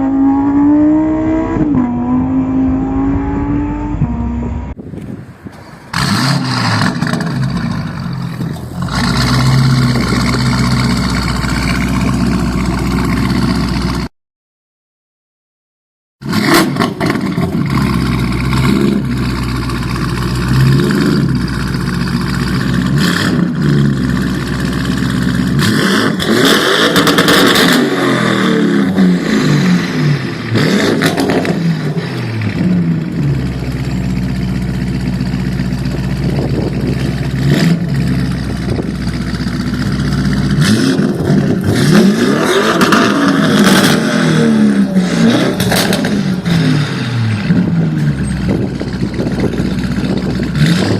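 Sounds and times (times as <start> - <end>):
car engine revving: 0.0 - 4.8, 16.2 - 50.9.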